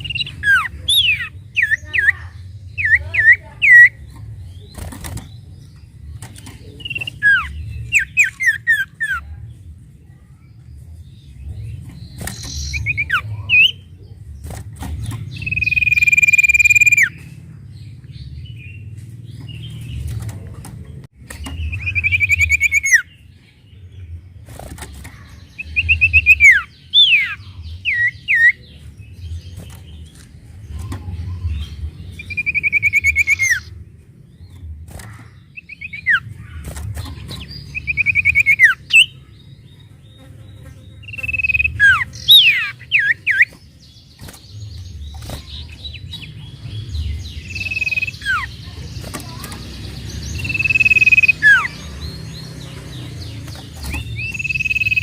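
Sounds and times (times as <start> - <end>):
songbird buzzy trill: 15.2 - 17.3, 21.5 - 23.2, 32.1 - 33.7, 35.5 - 55.0.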